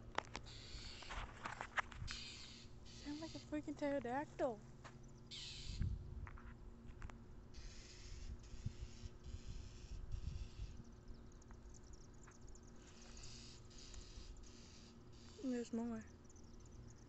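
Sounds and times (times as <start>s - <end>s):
bird screeching: 0.5s - 1.2s, 2.1s - 3.6s, 5.3s - 5.8s, 7.6s - 10.8s, 13.1s - 15.6s
wind rumble on microphone: 5.6s - 7.1s, 8.1s - 12.2s.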